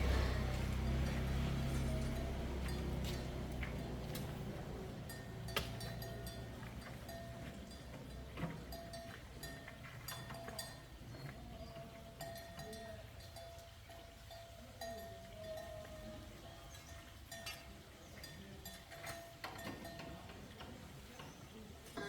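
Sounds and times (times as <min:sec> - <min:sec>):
faint low rumble: 0:00.0 - 0:05.4
light metallic clinks: 0:00.0 - 0:21.4.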